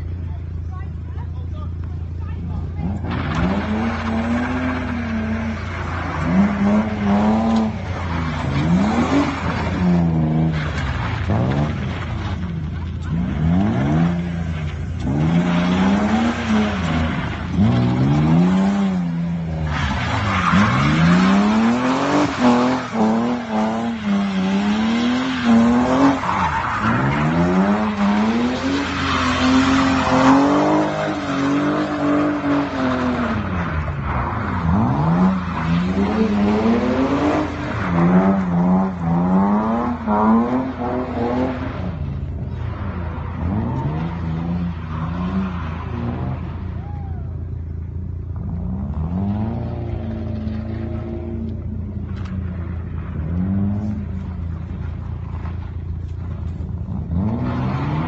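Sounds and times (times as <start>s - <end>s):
tyres squealing and skidding: 2.8s - 47.8s.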